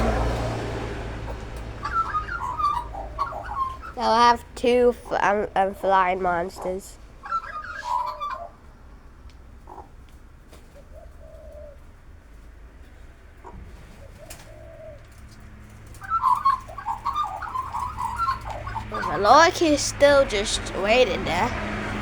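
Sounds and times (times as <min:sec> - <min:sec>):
dove cooing: 0:00.0 - 0:08.7, 0:10.6 - 0:11.9, 0:13.4 - 0:22.0
loud jumble of sounds: 0:16.0 - 0:22.0.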